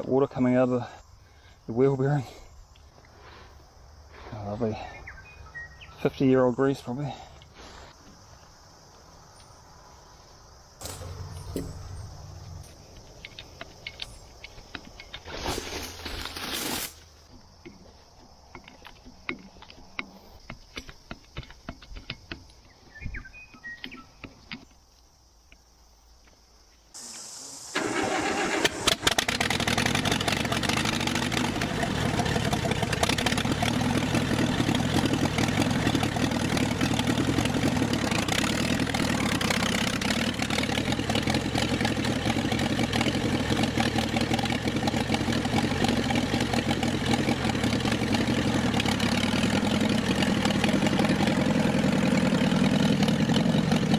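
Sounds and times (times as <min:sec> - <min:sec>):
tractor engine starting and running: 0:10.8 - 0:24.7, 0:27.0 - 0:53.9.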